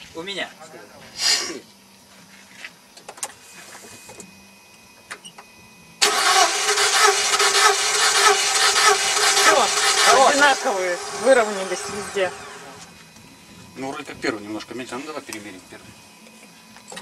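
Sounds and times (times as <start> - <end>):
starter motor cranking engine: 6.0 - 12.9.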